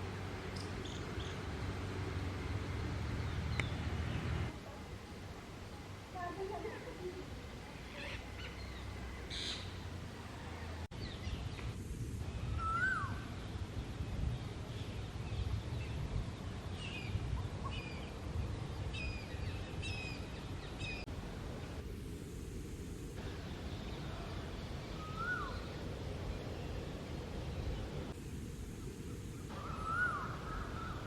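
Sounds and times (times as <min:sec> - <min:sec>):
low rumble of outdoor noise: 0:00.0 - 0:31.0
sweeping bird call: 0:12.5 - 0:13.3, 0:23.3 - 0:28.0, 0:29.4 - 0:31.0.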